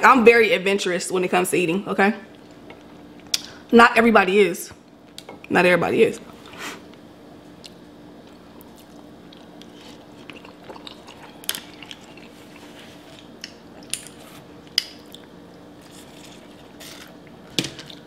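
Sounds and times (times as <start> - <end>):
faint steady hum: 0.0 - 18.0
chewing spaghetti: 7.6 - 14.2, 14.9 - 18.0.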